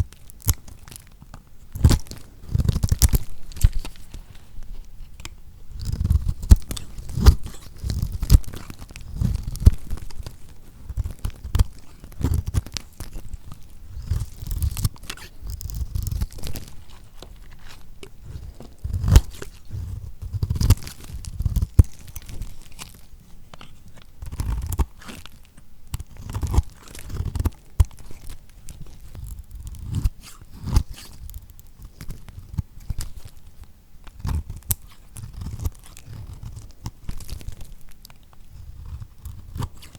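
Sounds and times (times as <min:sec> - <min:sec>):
knife cutting bar soap: 0:00.0 - 0:25.3, 0:34.0 - 0:39.9.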